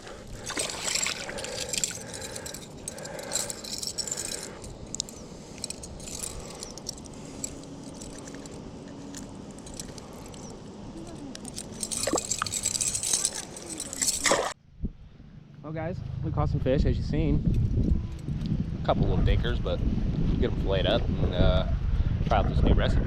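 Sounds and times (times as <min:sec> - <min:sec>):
light clicks rattles and scrapes: 0:00.4 - 0:14.6.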